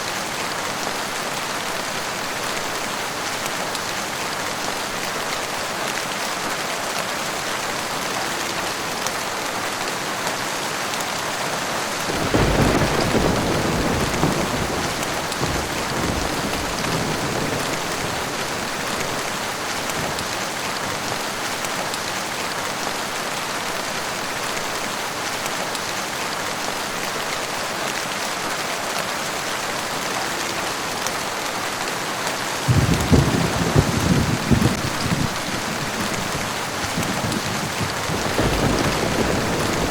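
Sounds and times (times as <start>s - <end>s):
heavy rainfall: 0.0s - 39.9s
thunder rumbling: 12.1s - 21.1s, 32.7s - 39.9s.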